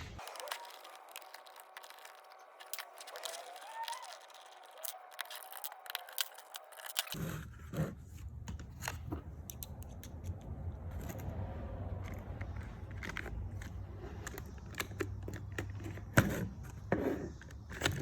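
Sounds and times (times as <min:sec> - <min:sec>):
steady low rumble: 0:00.0 - 0:00.2
plastic being handled: 0:00.0 - 0:18.0
screwdriver clicking and scraping: 0:00.2 - 0:11.4, 0:12.0 - 0:18.0.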